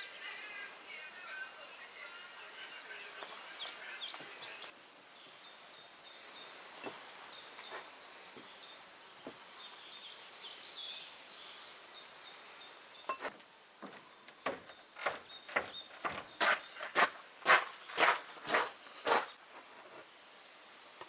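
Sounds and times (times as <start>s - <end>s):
small birds chirping: 0.1s - 13.3s, 13.9s - 19.4s.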